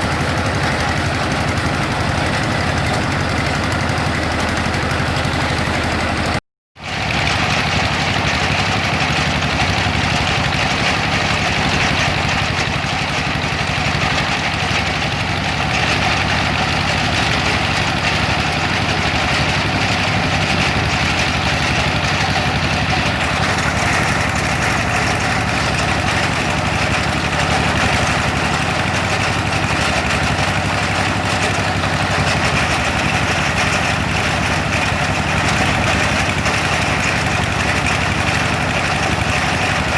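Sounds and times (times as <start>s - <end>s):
drilling rig machinery droning: 15.9s - 39.9s.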